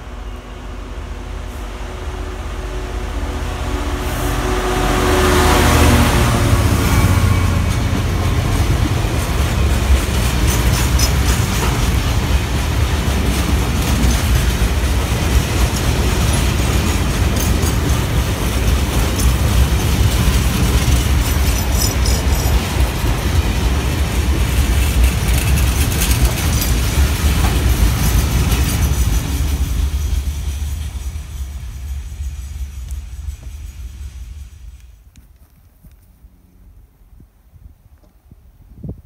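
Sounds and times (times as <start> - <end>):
freight train rumbling past: 0.0 - 37.6
wheels clattering over rails: 7.6 - 34.4.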